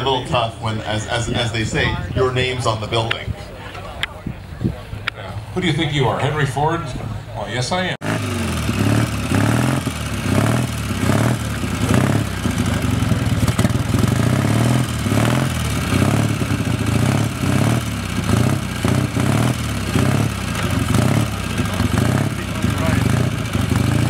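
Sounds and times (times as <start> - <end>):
pulsing vehicle engine running: 8.0 - 24.0.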